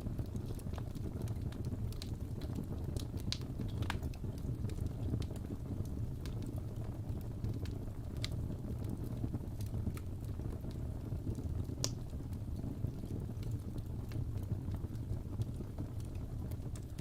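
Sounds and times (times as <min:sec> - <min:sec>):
burning logs crackling and popping: 0:00.0 - 0:17.0
wood fire rumbling: 0:00.0 - 0:17.0.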